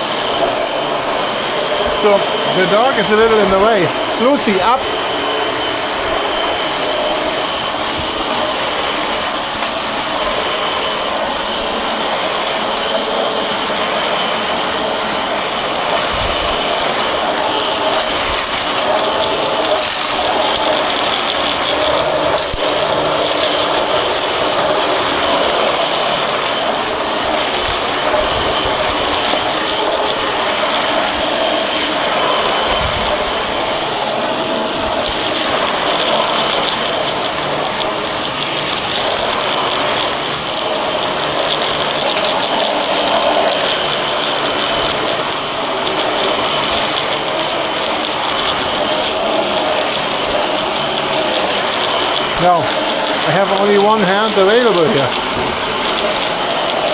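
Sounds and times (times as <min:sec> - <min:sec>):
vacuum cleaner running: 0:00.0 - 0:56.9.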